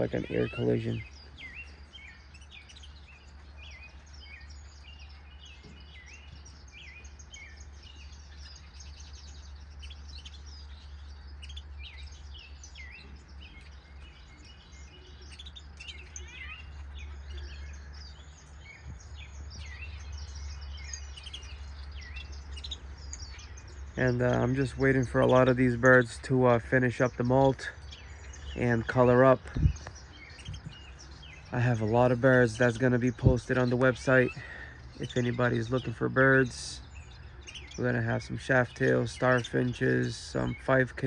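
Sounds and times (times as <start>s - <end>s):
finches chirping: 0.0s - 41.0s
steady low hum: 0.0s - 41.0s.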